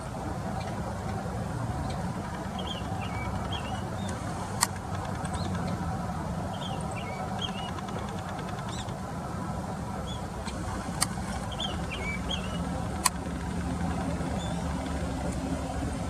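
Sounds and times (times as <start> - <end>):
low background rumble: 0.0 - 16.0
sharp click: 13.0 - 13.2.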